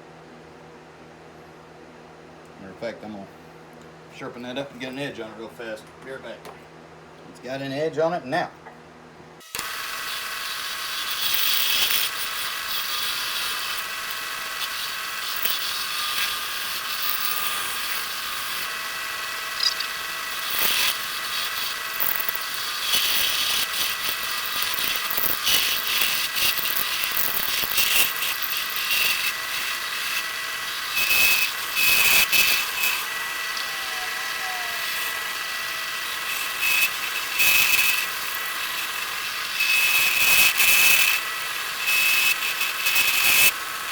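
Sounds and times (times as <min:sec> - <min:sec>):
wood lathe motor hum: 0:09.5 - 0:43.9
turning tool rasping on wood: 0:09.6 - 0:43.9.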